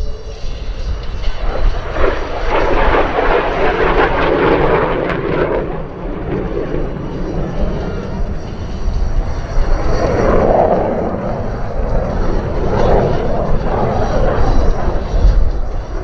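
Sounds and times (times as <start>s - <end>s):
jet fighter roar: 0.0s - 16.0s.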